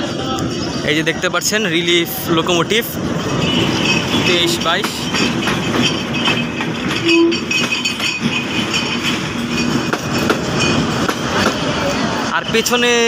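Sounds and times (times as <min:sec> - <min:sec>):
train wheels clattering on rails: 0:00.1 - 0:13.0.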